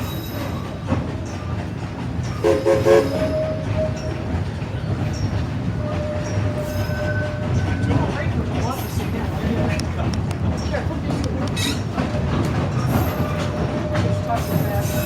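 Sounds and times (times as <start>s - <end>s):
train coach rolling rumble: 0.0s - 15.0s.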